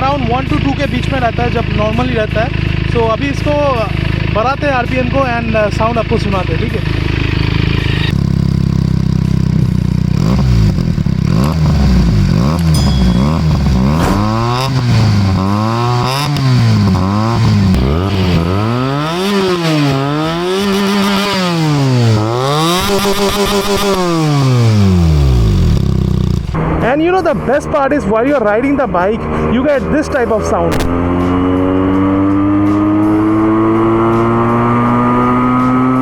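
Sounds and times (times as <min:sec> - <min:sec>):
motorcycle engine revving: 0:08.1 - 0:26.6, 0:30.1 - 0:36.0.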